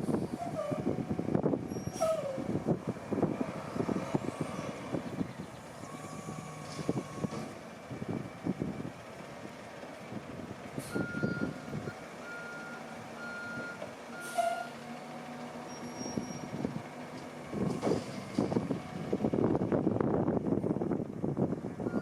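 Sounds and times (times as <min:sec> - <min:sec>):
diesel truck engine running: 0:00.0 - 0:22.0
reversing alarm beeps: 0:11.0 - 0:11.6.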